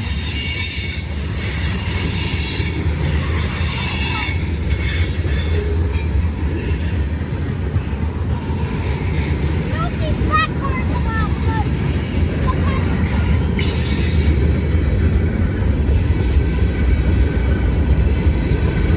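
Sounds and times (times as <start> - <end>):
steel wheel squeal: 0.0 - 7.1, 8.4 - 14.6
freight train cars rumbling: 0.0 - 18.9.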